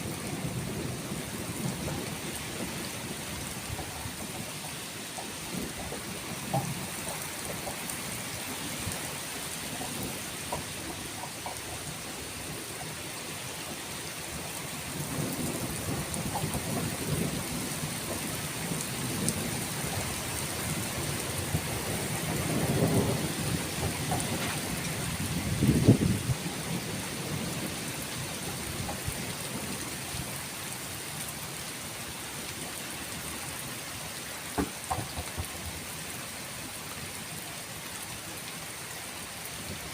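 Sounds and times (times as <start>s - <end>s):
rolling thunder: 0.0s - 4.7s, 14.8s - 29.9s
steady rain falling: 0.0s - 39.9s.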